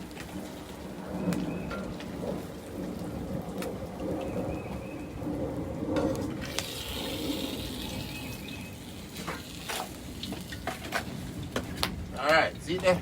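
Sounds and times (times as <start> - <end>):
oil popping: 6.0 - 13.0
fish sizzling in hot oil: 6.1 - 11.8.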